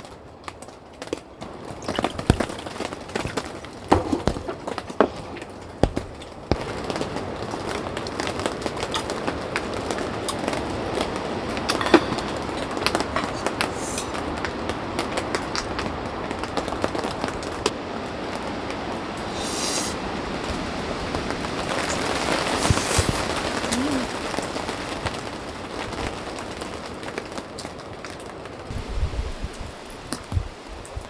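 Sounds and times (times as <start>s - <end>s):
crackling hiss with pops: 0.0s - 31.0s.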